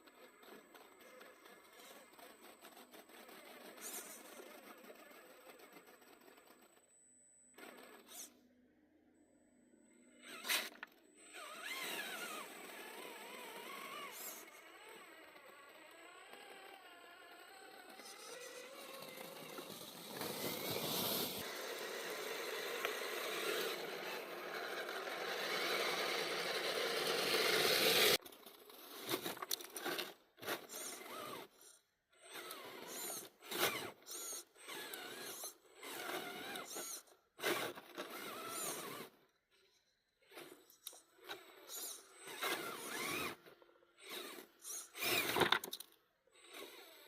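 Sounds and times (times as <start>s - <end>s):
electric motor whirring: 10.2s - 28.2s, 32.2s - 39.1s, 40.3s - 43.4s, 44.0s - 45.4s
scraping and rattling over ground: 17.9s - 31.5s.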